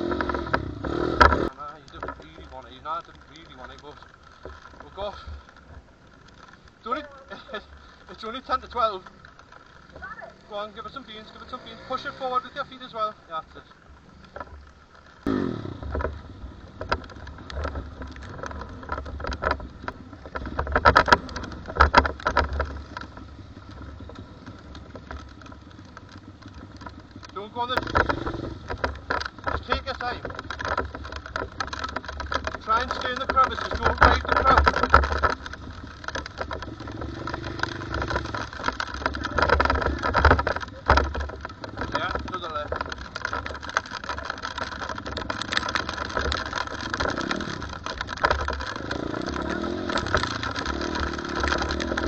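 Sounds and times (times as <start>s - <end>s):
pit bike engine running: 0.0s - 2.8s, 15.2s - 52.0s
sharp clicks and knocks: 0.0s - 10.2s, 10.8s - 52.0s.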